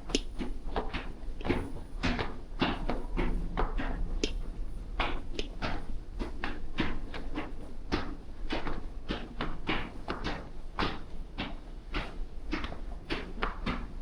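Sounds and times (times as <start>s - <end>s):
low background rumble: 2.4s - 7.1s.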